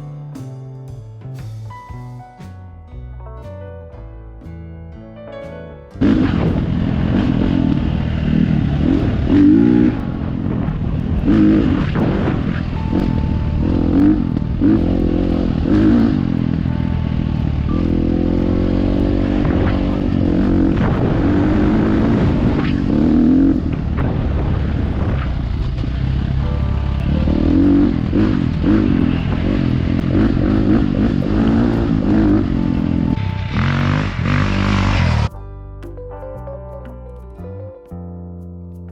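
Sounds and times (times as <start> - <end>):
dirt bike engine revving: 6.0 - 35.3.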